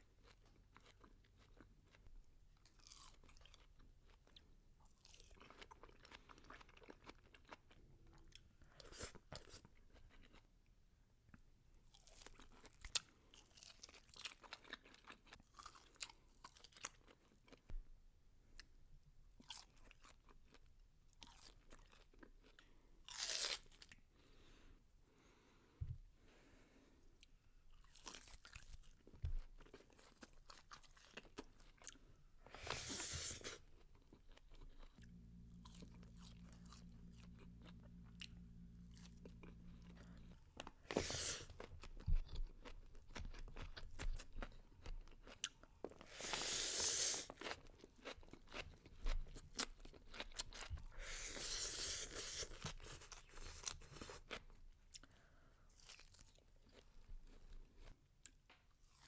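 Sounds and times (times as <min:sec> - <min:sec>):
chewing and crunching: 0:00.0 - 0:10.5, 0:11.9 - 0:17.7, 0:19.4 - 0:24.0, 0:27.7 - 0:59.0
low steady hum: 0:34.9 - 0:41.0.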